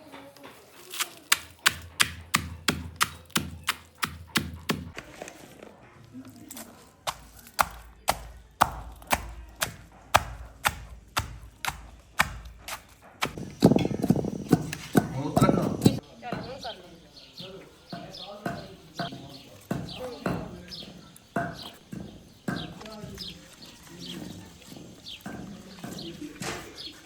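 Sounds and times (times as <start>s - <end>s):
sharp knocks: 13.2s - 16.7s, 18.0s - 23.4s.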